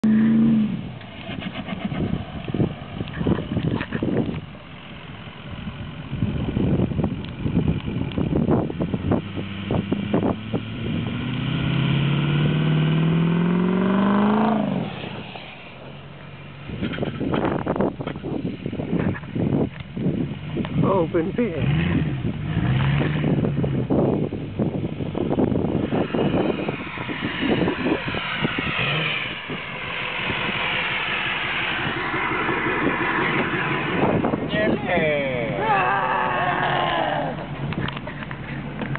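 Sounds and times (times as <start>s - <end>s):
truck engine revving: 0.0s - 4.2s, 8.5s - 17.0s, 21.4s - 38.9s
high whine: 23.2s - 38.9s.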